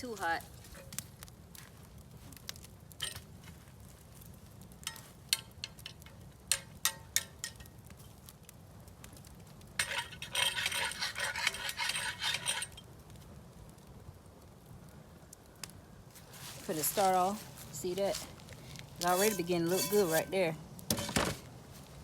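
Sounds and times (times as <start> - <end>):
cast iron skillets clinking: 3.0 - 3.3, 4.8 - 7.8, 9.8 - 12.8, 17.9 - 21.5
scrubbing cast iron: 9.8 - 12.8, 16.3 - 21.5.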